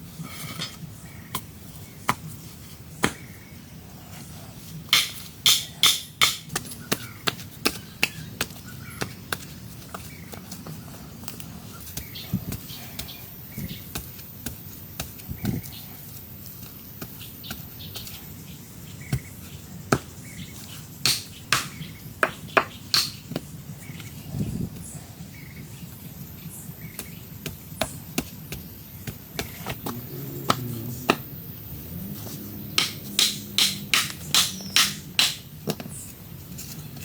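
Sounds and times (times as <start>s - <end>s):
sharp knocks of wood being worked: 3.0s - 3.3s, 4.9s - 10.6s, 11.9s - 15.7s, 21.0s - 23.5s, 27.0s - 31.3s, 32.7s - 35.9s.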